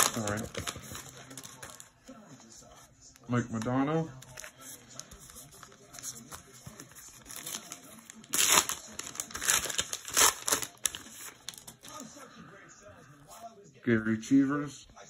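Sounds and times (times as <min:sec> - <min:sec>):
foil wrapper crinkling and tearing: 0:00.0 - 0:01.9, 0:07.0 - 0:12.0.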